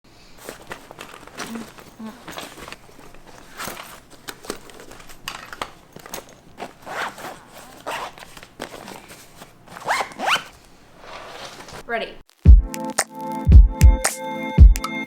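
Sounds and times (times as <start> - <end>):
short rasping rustles: 0.3 - 11.9.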